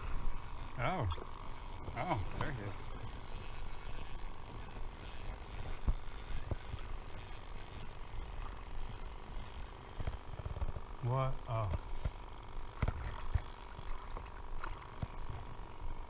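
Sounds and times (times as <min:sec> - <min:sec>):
fishing reel ticking: 0:00.0 - 0:16.0.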